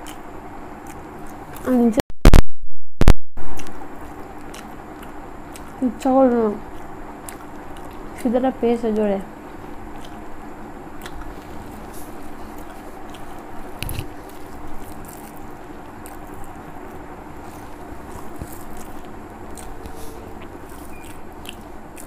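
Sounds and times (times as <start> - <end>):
chewing and wet mouth clicks: 0.0 - 0.2, 0.8 - 1.7, 3.5 - 5.8, 6.7 - 8.4, 9.9 - 10.2, 11.0 - 22.0
low hum: 0.0 - 22.0.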